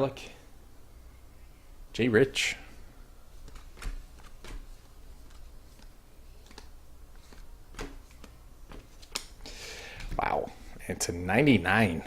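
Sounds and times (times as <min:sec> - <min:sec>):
cards tapping on plastic: 0:03.4 - 0:09.3
cards being shuffled: 0:03.4 - 0:09.4.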